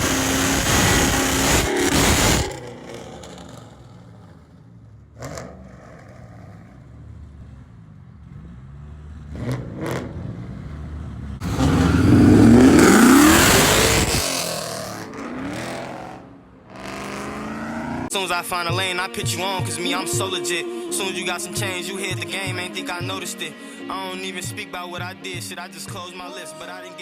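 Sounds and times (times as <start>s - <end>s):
car engine idling: 0.0s - 9.2s, 10.8s - 18.1s
car revving and accelerating: 0.0s - 18.1s.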